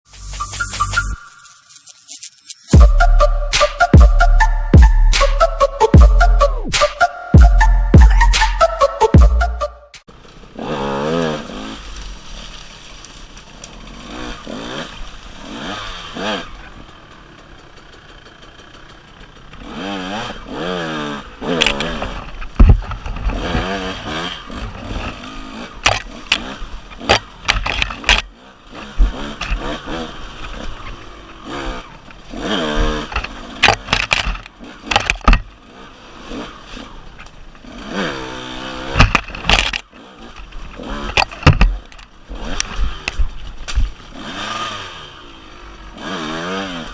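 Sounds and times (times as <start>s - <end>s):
dirt bike engine revving: 2.7s - 12.4s, 13.4s - 46.9s
sharp knocks and thumps: 21.6s - 23.8s, 32.8s - 35.5s, 40.8s - 44.0s.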